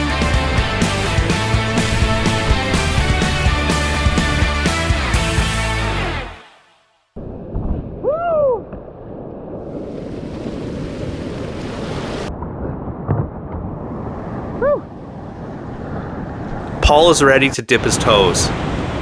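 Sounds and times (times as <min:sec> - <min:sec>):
music: 0:00.0 - 0:07.0
wind on microphone: 0:01.1 - 0:04.5, 0:07.2 - 0:16.8.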